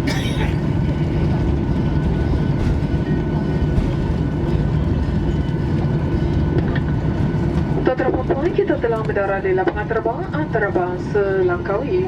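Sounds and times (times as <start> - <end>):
aircraft cabin rumble: 0.0 - 12.0
jet engine noise: 0.0 - 12.0
wheel rumble: 0.4 - 9.3.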